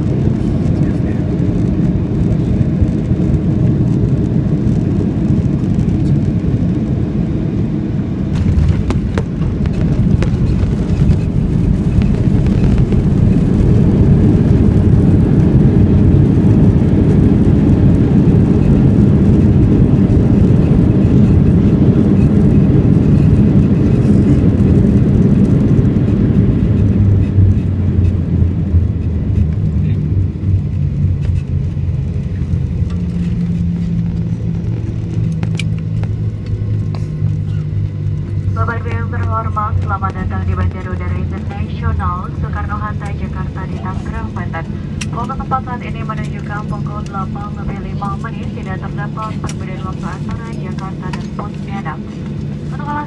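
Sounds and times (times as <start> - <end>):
airplane engines rumbling: 0.0 - 53.0
rushing air: 8.1 - 17.2.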